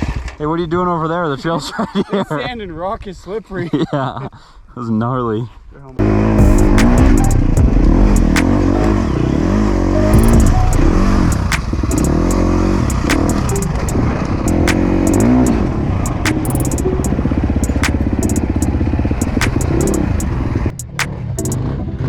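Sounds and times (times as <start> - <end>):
dirt bike engine revving: 6.0 - 16.3
sharp clacks: 6.4 - 8.9, 10.2 - 21.6.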